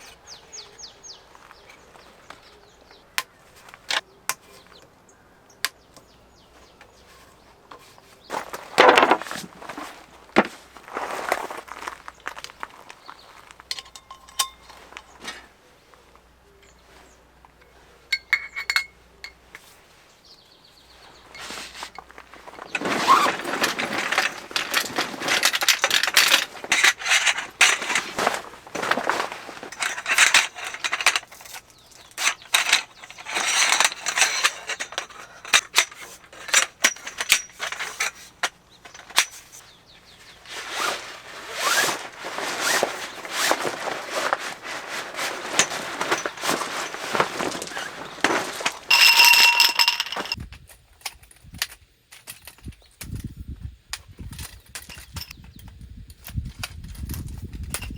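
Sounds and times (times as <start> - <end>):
gear rustling and scraping: 6.3 - 50.4.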